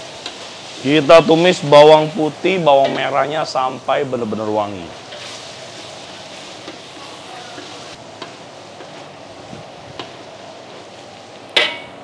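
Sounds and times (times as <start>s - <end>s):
food sizzling in oil: 0.0s - 12.0s
ladle knocking on wok: 11.6s - 12.0s.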